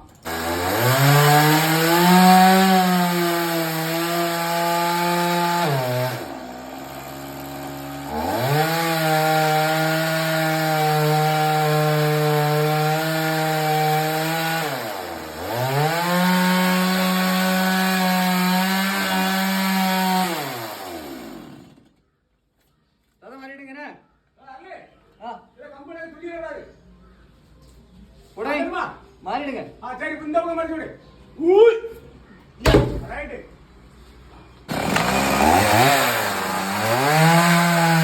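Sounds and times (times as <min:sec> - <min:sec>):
chainsaw cutting wood: 0:00.2 - 0:21.9, 0:34.7 - 0:38.0.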